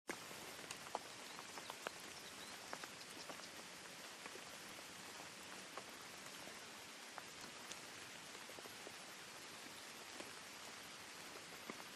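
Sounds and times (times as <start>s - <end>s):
light ticks: 0.1s - 3.6s, 7.1s - 8.7s
steady white noise hiss: 0.1s - 11.9s.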